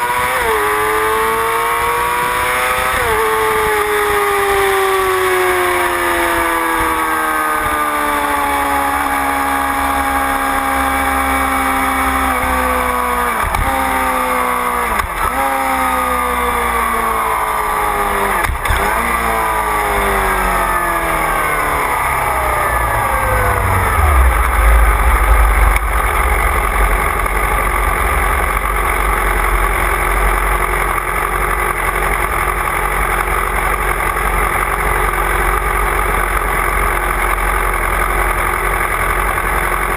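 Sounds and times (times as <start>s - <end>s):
motorcycle engine slowing down: 18.5s - 39.9s.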